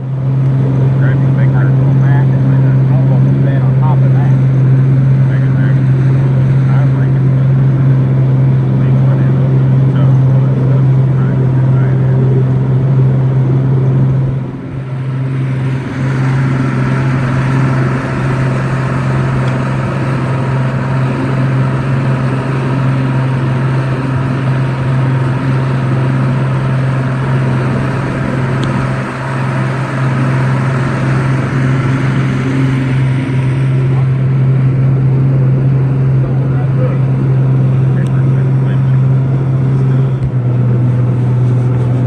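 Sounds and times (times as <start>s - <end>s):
outboard motor running: 0.0s - 42.0s.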